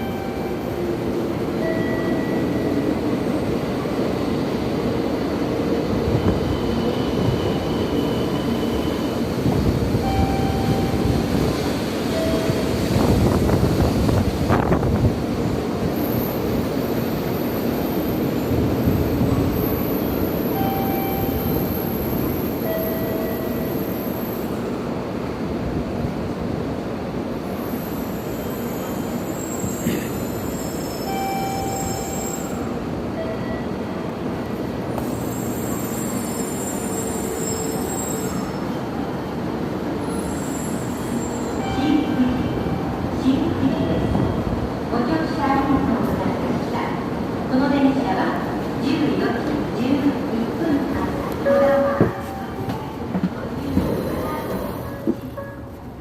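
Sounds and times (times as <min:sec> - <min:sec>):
train running noise: 0:00.0 - 0:56.0
brake and wheel squeals: 0:27.6 - 0:32.8, 0:35.0 - 0:38.9, 0:40.0 - 0:41.9.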